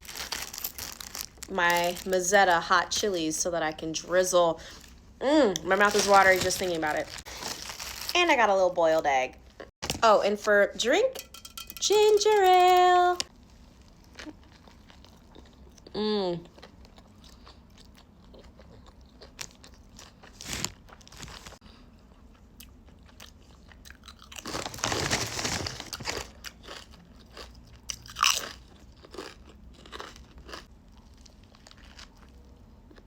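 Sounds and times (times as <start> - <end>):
chewing sandwich: 13.8 - 24.8, 25.9 - 33.0.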